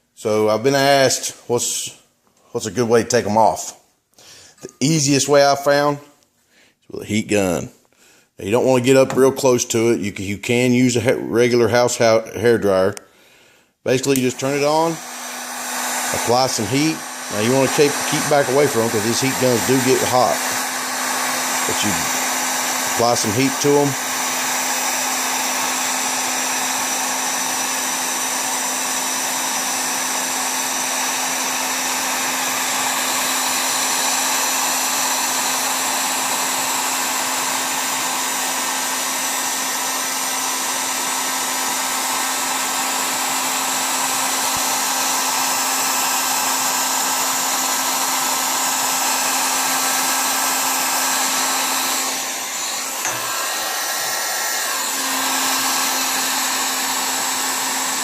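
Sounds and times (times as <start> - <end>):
heat gun blowing air: 13.9 - 58.0
heat gun hum: 13.9 - 58.0.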